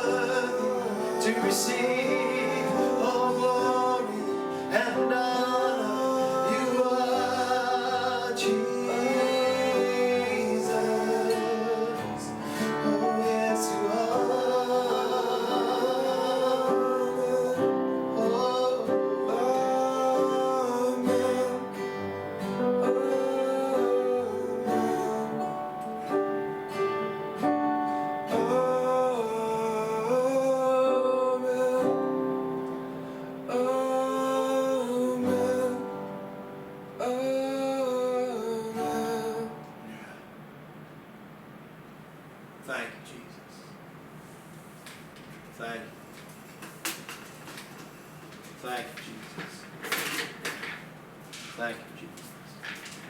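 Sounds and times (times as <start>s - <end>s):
person singing long notes: 0.0s - 26.5s, 28.2s - 36.2s
guitar accompaniment: 0.0s - 40.8s.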